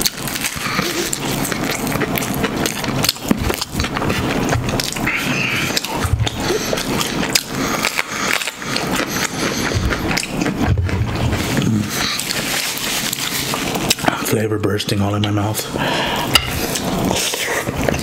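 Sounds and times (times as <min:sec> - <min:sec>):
mouth chewing and crunching: 0:00.0 - 0:14.4.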